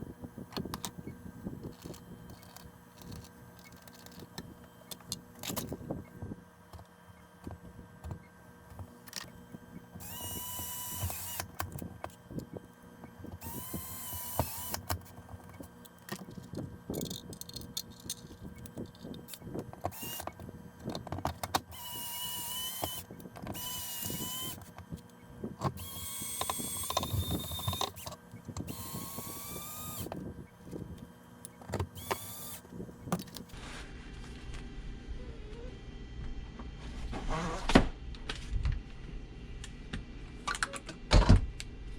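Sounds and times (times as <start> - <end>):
cordless screwdriver motor whine: 0.0 - 6.4, 9.0 - 33.6.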